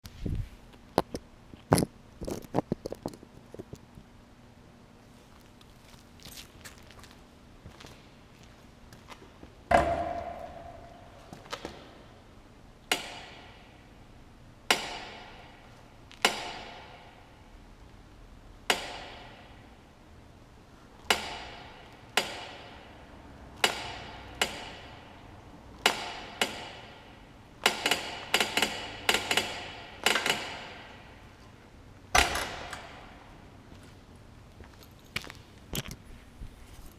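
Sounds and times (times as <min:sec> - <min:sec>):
sharp metallic clanks from motorcycle: 0:23.6 - 0:25.0.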